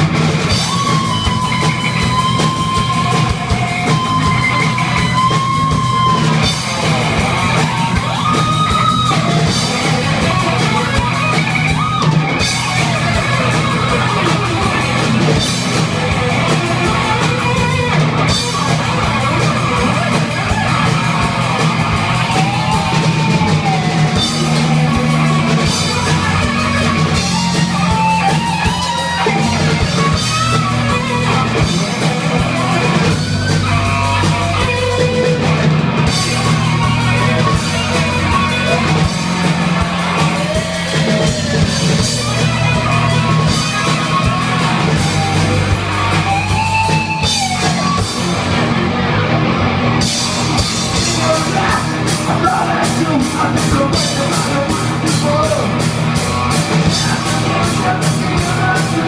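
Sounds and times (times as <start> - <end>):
distorted electric guitars: 0.0 - 59.0
drum kit: 0.0 - 59.0
heavy metal band playing: 0.0 - 59.0
lead guitar bending notes: 0.0 - 59.0.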